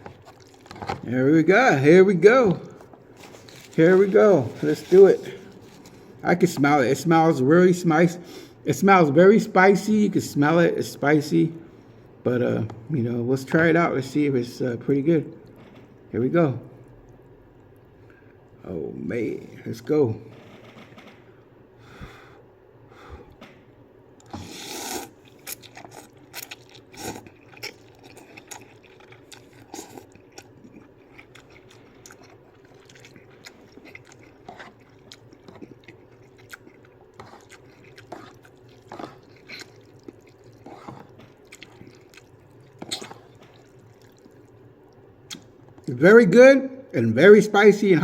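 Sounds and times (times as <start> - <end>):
chewing with wet mouth clicks: 24.2 - 45.9
noodle slurp: 24.3 - 32.0, 37.2 - 44.6.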